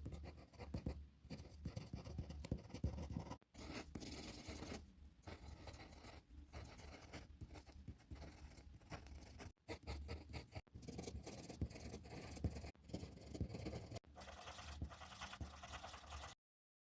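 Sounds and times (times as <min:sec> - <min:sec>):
drawing tool scratching on paper: 0:00.0 - 0:16.4.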